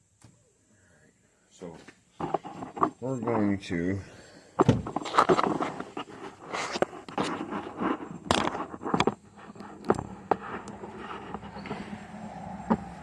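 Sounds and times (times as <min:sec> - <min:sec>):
objects and tools being handled: 0:01.8 - 0:03.2, 0:04.6 - 0:12.0.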